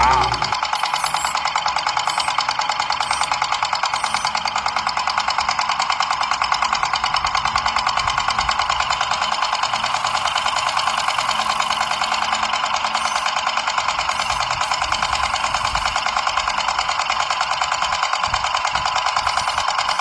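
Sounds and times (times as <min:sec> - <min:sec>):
small electric motor rattling: 0:18.7 - 0:20.0.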